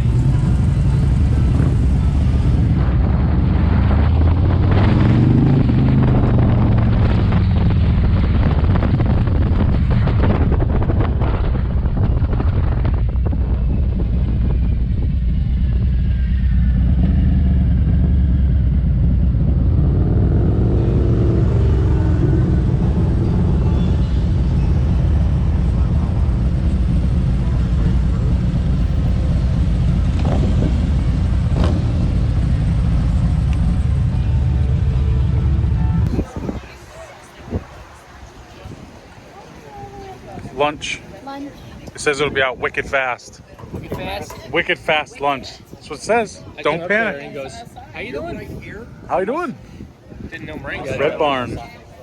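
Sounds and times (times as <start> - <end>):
motorcycle engine rumbling: 0.0 - 52.0.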